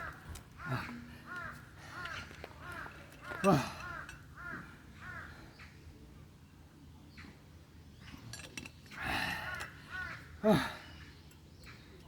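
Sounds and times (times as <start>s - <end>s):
crows cawing: 0.0s - 5.4s, 9.4s - 10.3s.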